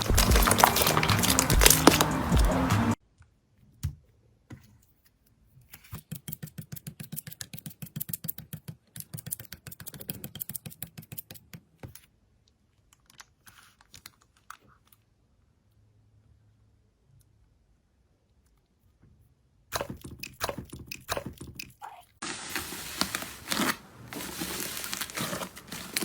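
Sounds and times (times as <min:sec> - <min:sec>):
music: 0:00.0 - 0:03.0.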